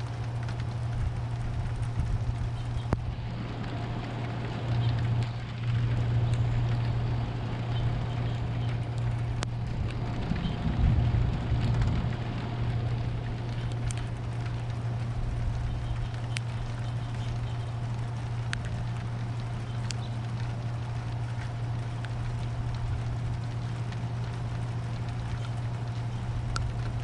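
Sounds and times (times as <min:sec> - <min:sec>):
steady low hum: 0:00.0 - 0:27.0
thunder rumbling: 0:00.0 - 0:27.0
faint ticks: 0:13.2 - 0:27.0.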